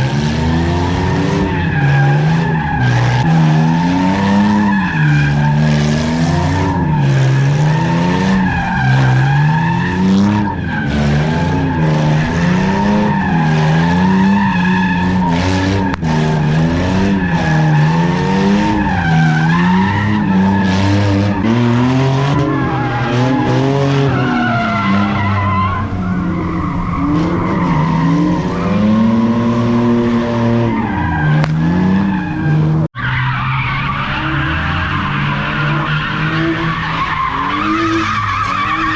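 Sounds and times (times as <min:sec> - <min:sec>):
car engine revving: 0:00.0 - 0:38.9
tyres squealing: 0:33.0 - 0:38.9.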